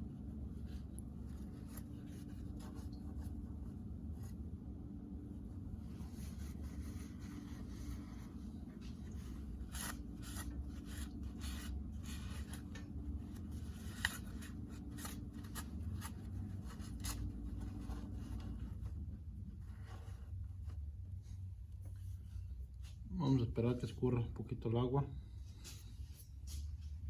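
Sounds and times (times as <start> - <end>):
steady low hum: 0.0 - 27.0
scraping and rubbing on engine: 5.3 - 23.1.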